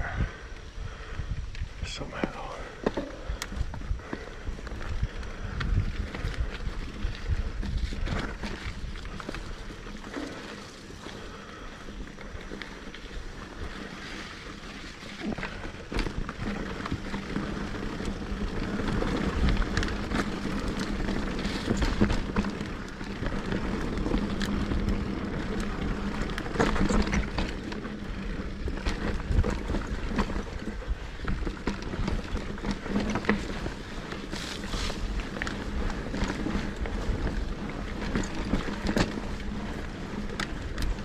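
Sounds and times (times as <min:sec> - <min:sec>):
bike tyre noise on dirt: 0:00.0 - 0:41.0
wind buffeting microphone: 0:00.0 - 0:41.0
bike knocks and rattles: 0:13.6 - 0:41.0.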